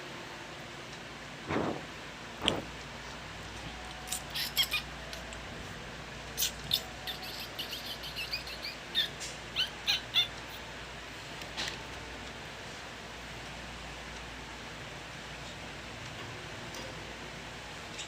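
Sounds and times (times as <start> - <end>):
baby birds chirping: 4.0 - 5.2, 6.4 - 10.7.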